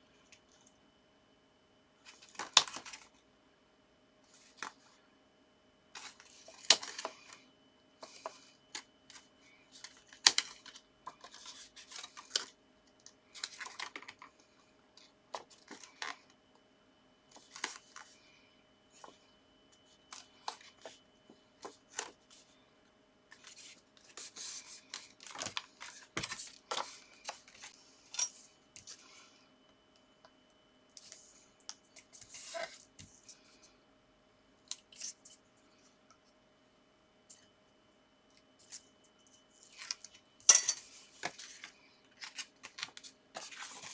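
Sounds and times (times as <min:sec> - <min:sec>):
paper rustling and crinkling: 0:02.0 - 0:03.2, 0:08.0 - 0:12.6, 0:13.3 - 0:14.4, 0:17.3 - 0:18.2, 0:21.6 - 0:22.6, 0:23.3 - 0:27.8, 0:31.9 - 0:33.5, 0:40.8 - 0:43.9.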